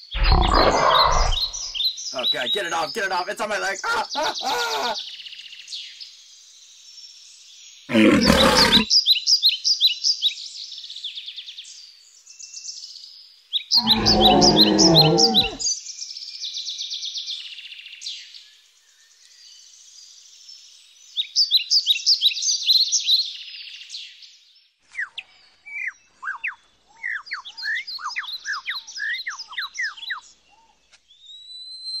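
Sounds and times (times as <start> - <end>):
bird chirps and trills: 0.0 - 1.8.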